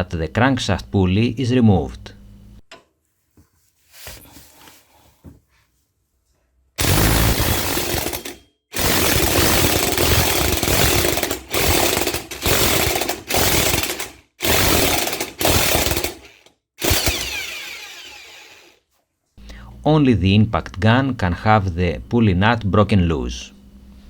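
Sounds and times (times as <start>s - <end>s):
impact gun hammering: 6.8s - 16.3s.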